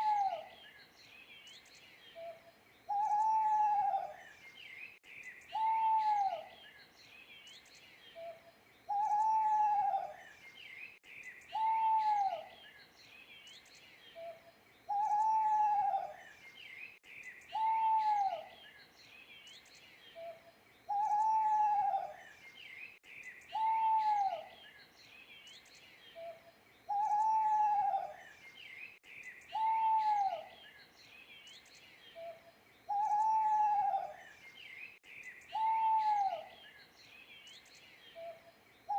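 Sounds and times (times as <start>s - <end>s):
owl hooting: 0.0s - 0.5s, 2.2s - 4.2s, 5.5s - 6.5s, 8.2s - 10.2s, 11.5s - 12.5s, 14.2s - 16.2s, 17.5s - 18.5s, 20.2s - 22.2s, 23.5s - 24.5s, 26.2s - 28.2s, 29.5s - 30.6s, 32.2s - 34.2s, 35.5s - 36.6s
small birds chirping: 0.0s - 38.9s.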